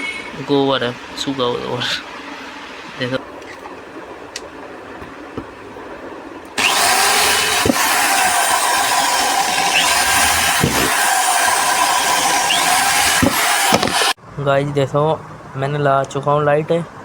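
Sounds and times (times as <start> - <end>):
electric drill running: 6.6 - 14.2.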